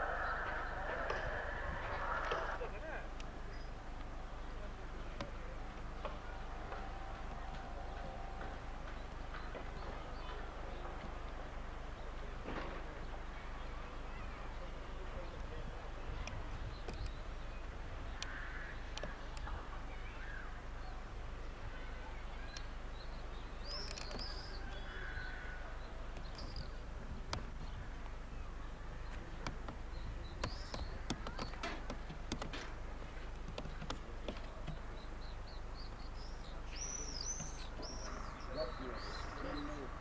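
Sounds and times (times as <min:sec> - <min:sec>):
crow-like caws: 0:00.0 - 0:02.6, 0:18.2 - 0:19.1, 0:24.8 - 0:25.7
birds calling: 0:00.0 - 0:40.0
sharp clicks: 0:16.2 - 0:17.2, 0:18.2 - 0:19.5, 0:23.7 - 0:24.4, 0:26.1 - 0:28.2, 0:29.1 - 0:35.0.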